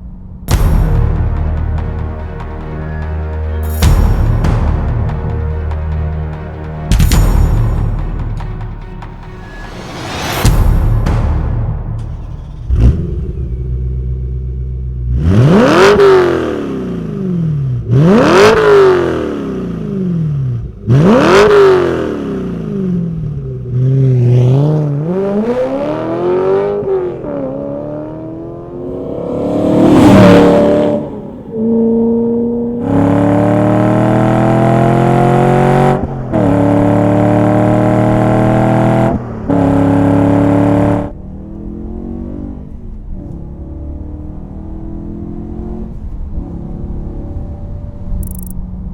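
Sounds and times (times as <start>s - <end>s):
car engine revving: 24.4s - 42.9s.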